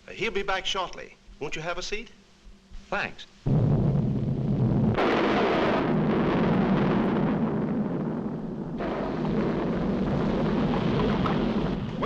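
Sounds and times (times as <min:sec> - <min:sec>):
volcano rumble: 0:03.5 - 0:12.0.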